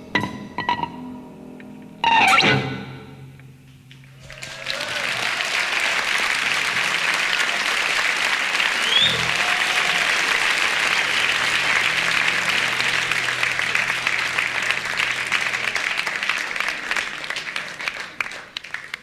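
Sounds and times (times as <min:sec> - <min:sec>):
audience applauding: 0:03.9 - 0:19.0.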